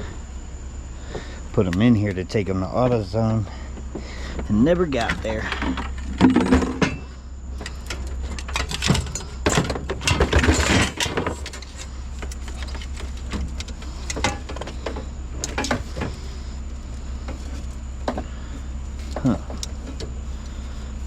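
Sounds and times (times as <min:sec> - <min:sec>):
steady low hum: 0:00.0 - 0:21.0
car batteries knocking and clattering: 0:03.6 - 0:16.4, 0:17.2 - 0:21.0.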